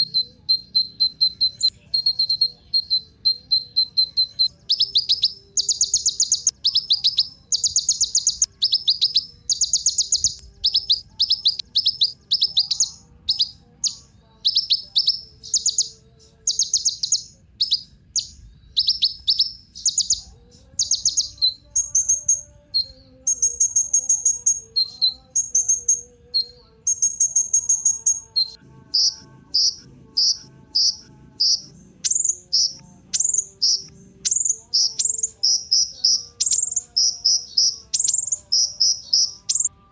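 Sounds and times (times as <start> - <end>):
sunbird singing: 0.0 - 39.9.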